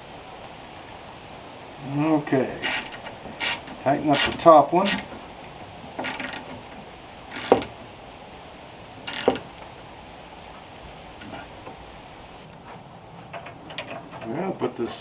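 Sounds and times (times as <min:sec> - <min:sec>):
wrench ratcheting: 0:02.6 - 0:05.2, 0:06.0 - 0:06.6, 0:07.3 - 0:07.8, 0:09.1 - 0:09.5.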